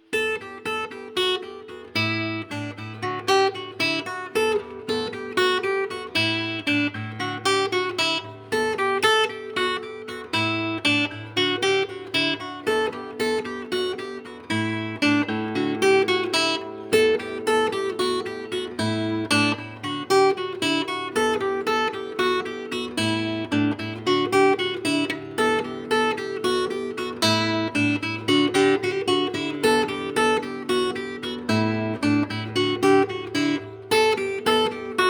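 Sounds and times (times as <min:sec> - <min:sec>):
fingerstyle acoustic guitar: 0:00.0 - 0:35.0.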